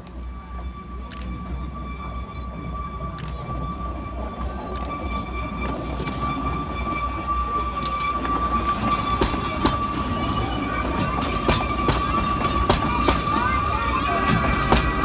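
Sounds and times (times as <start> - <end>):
wheels clicking over rail joints: 4.9 - 15.0.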